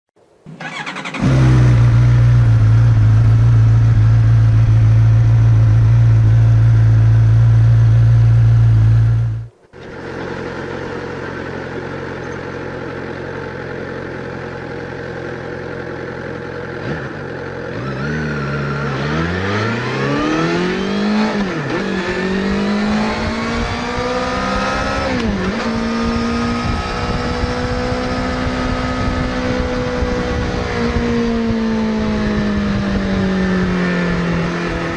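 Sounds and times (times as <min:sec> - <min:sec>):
motorcycle engine revving: 0:00.5 - 0:34.9
loud steady low drone: 0:01.2 - 0:17.6.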